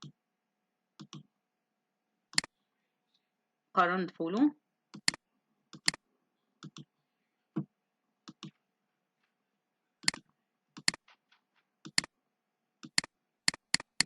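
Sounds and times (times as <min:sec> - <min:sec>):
computer keys clicking: 0:01.0 - 0:01.3, 0:05.0 - 0:06.0, 0:06.6 - 0:06.9, 0:08.3 - 0:08.6, 0:10.0 - 0:11.2, 0:11.8 - 0:12.1, 0:12.8 - 0:14.0.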